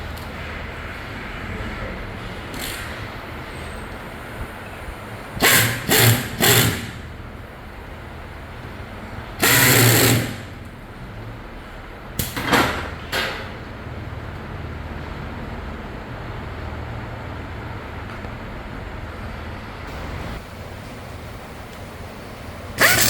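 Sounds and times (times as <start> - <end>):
factory hum: 0.0 - 23.0
power tool bursts: 5.4 - 7.0, 9.4 - 10.5, 22.7 - 23.0.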